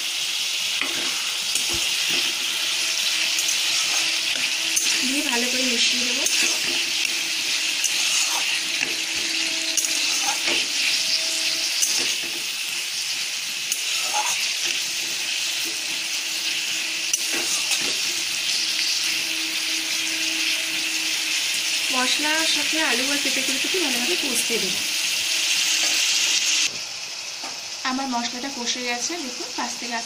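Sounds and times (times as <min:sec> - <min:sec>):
vegetables sizzling in oil: 0:00.0 - 0:30.0
metal spatula scraping pan: 0:00.8 - 0:13.1, 0:13.7 - 0:21.8.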